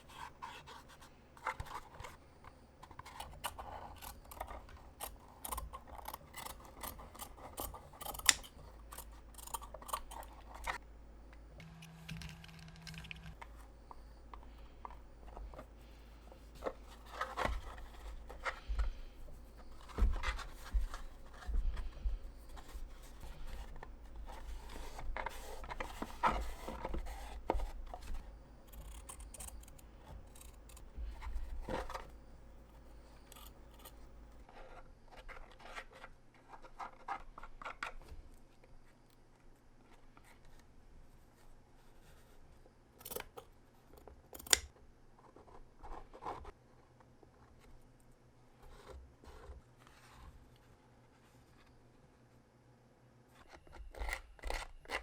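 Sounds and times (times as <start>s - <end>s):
scissors snipping: 2.8s - 10.8s, 27.4s - 32.1s, 33.1s - 34.1s, 43.0s - 43.4s, 44.4s - 44.7s
material rustling and scraping: 13.3s - 37.4s.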